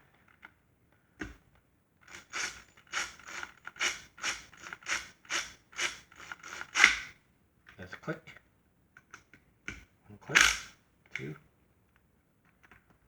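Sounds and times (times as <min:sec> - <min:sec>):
impact wrench bursts: 0:02.1 - 0:07.1.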